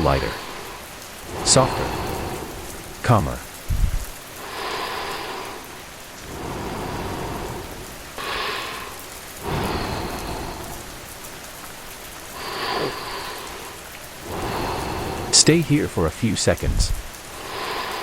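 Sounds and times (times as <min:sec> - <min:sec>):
steady rainfall: 0:00.0 - 0:18.0
low rumble: 0:01.2 - 0:04.2.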